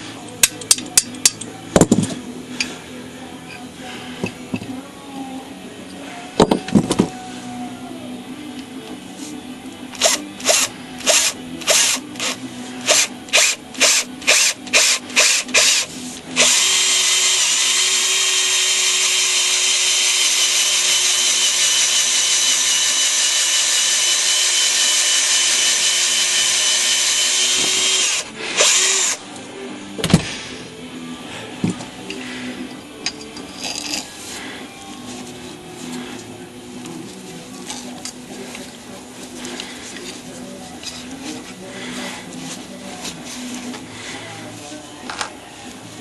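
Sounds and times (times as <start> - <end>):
power drill running: 10.0 - 29.2.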